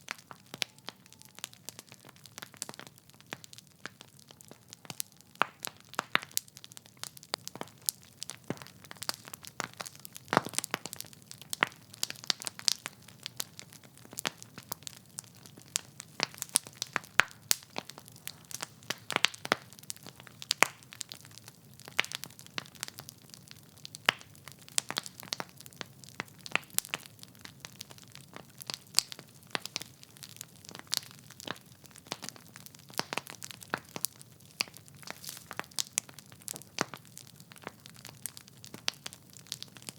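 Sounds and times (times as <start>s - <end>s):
wood fire crackling: 0.0s - 39.9s
sharp pops and snaps: 27.7s - 39.9s
soft hiss of flames: 34.5s - 36.0s.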